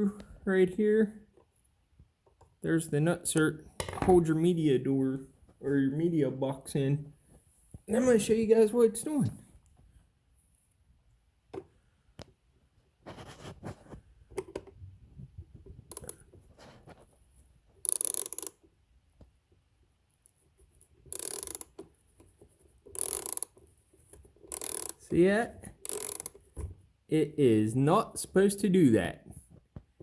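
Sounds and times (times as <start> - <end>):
ratchet clicking: 15.9 - 16.2, 17.8 - 18.6, 21.1 - 21.8, 22.9 - 23.6, 24.4 - 25.1, 25.8 - 26.4.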